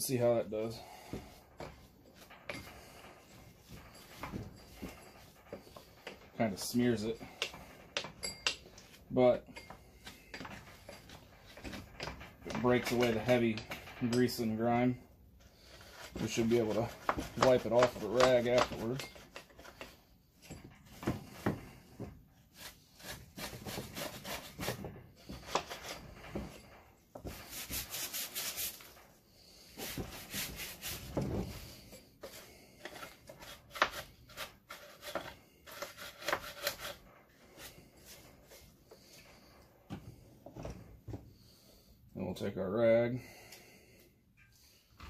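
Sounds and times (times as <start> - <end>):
stiff brush scrubbing: 27.4 - 29.0.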